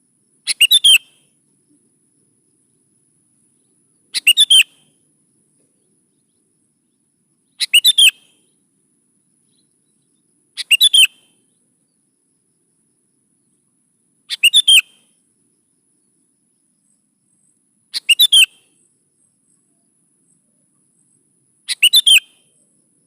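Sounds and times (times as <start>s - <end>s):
bulbul singing whistled notes: 0.5s - 1.2s, 4.2s - 5.0s, 7.6s - 8.4s, 9.4s - 11.5s, 14.3s - 15.1s, 18.0s - 18.8s, 21.7s - 22.6s.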